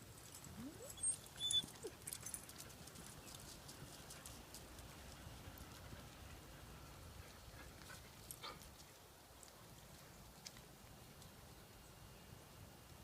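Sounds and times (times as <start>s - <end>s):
puppy paws pattering: 0.3s - 6.2s.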